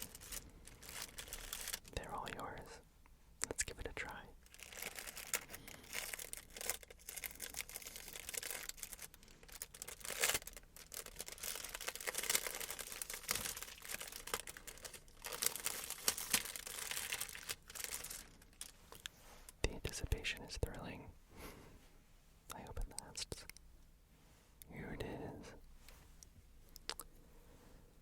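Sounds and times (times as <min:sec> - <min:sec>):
plastic wrapping crinkling and tearing: 0:00.0 - 0:02.0, 0:04.4 - 0:19.2.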